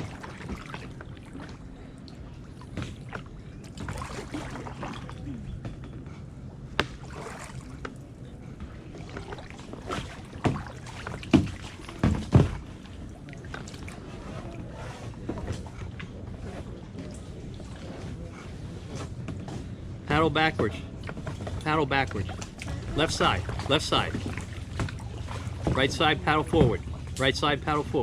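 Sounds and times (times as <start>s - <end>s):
steady low hum: 0.0s - 28.0s
water: 0.0s - 28.0s
kayak paddle strokes: 6.0s - 19.7s, 20.5s - 28.0s.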